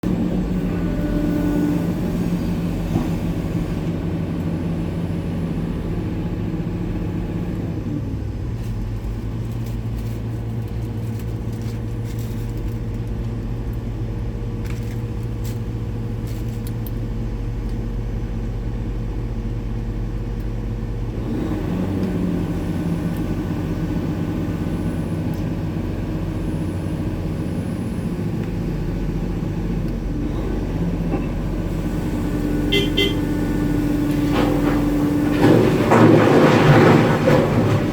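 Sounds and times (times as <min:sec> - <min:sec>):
heavy diesel excavator engine: 0:00.0 - 0:37.9.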